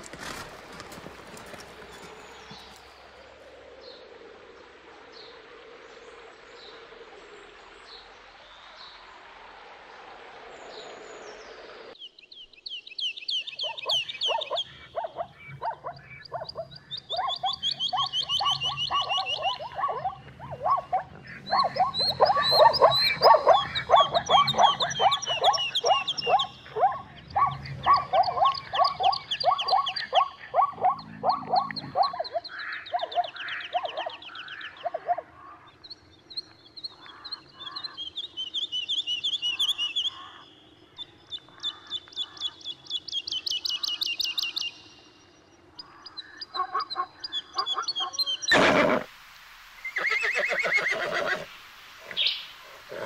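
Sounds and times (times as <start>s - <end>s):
high chirping trills: 13.4s - 34.2s
zebras barking yelps: 13.6s - 35.4s, 46.5s - 49.1s, 50.0s - 51.5s, 52.1s - 53.0s.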